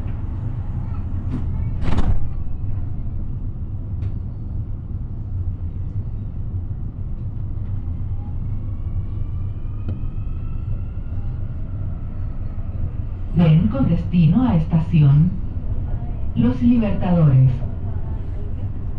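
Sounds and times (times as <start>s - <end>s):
train interior low rumble: 0.0s - 18.9s.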